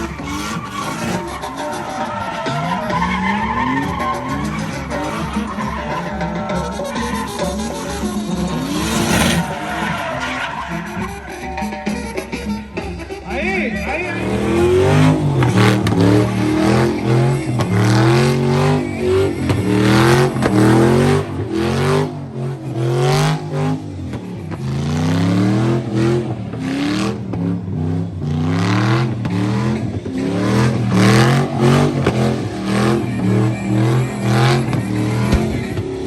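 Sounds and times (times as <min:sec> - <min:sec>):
truck engine revving: 0:00.0 - 0:36.0.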